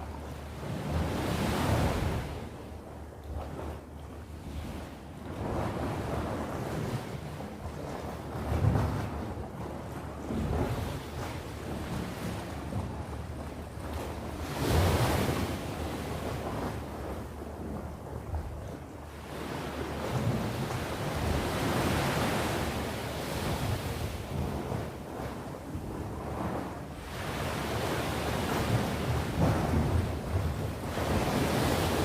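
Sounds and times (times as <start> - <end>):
wind rumbling on microphone: 0.0 - 32.0
sea waves washing onto shore: 19.3 - 32.0.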